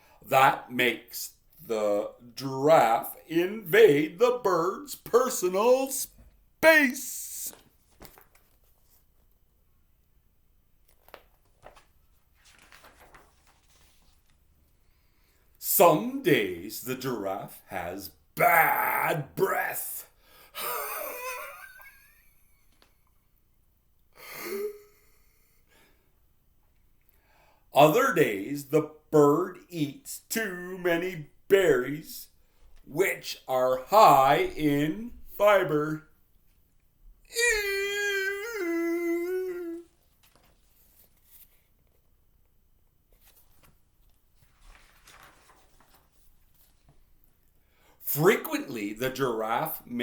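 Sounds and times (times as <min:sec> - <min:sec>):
faint rustles: 0:43.1 - 0:47.4.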